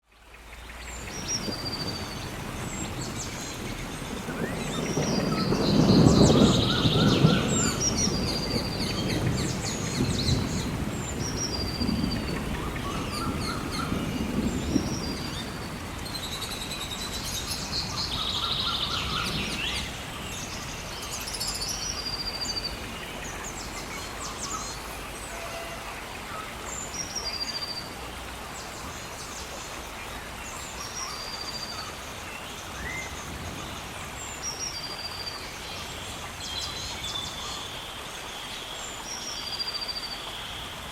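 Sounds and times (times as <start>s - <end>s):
birds singing: 0.2s - 28.0s.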